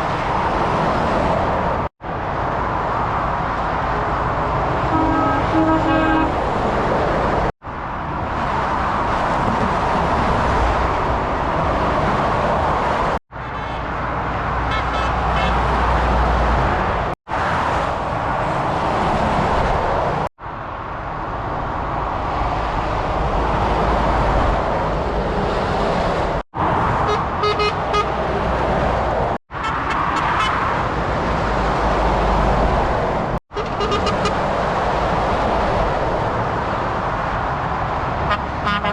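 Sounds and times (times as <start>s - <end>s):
heavy lorries passing: 0.0s - 38.9s
truck horn blasts: 4.9s - 6.4s, 14.7s - 15.6s, 27.1s - 28.2s, 33.5s - 34.4s, 38.3s - 38.9s.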